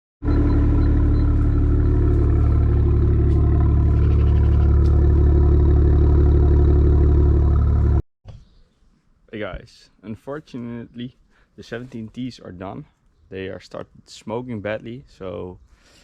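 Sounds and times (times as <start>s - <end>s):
car engine idling: 0.2s - 8.0s.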